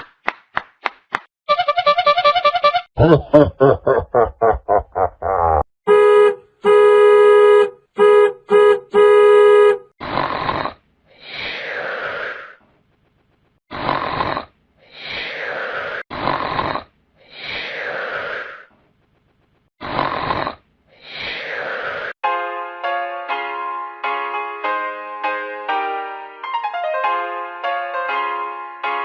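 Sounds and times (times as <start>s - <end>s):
buzzy electronic horn blasts: 1.5s - 2.9s, 5.9s - 9.9s
snoring sound effect: 10.0s - 12.6s, 13.7s - 18.7s, 19.8s - 22.2s.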